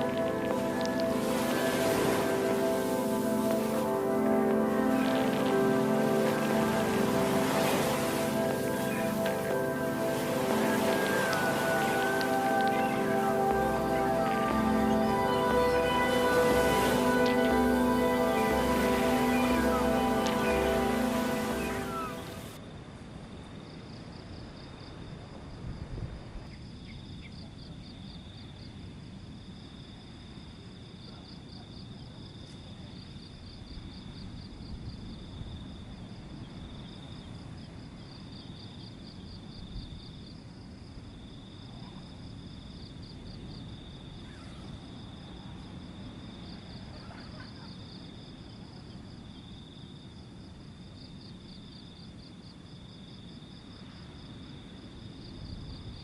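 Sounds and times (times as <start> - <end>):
higher pulsed chirping: 0.0 - 22.6
cricket continuous trill: 0.0 - 56.0.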